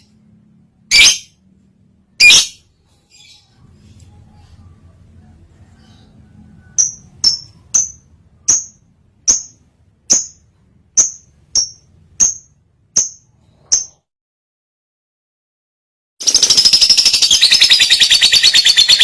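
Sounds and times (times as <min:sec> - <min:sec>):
bird chirping: 0:00.9 - 0:01.4, 0:02.1 - 0:14.0, 0:16.2 - 0:19.0.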